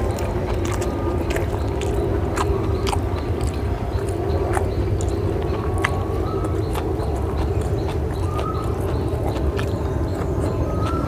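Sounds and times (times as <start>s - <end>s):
man chewing with lip-smacking: 0.0s - 11.0s
steady low hum: 0.0s - 11.0s.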